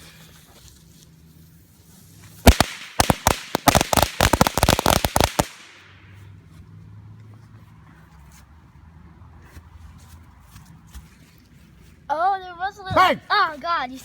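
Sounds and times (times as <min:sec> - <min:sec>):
firecrackers banging: 0:02.4 - 0:06.0.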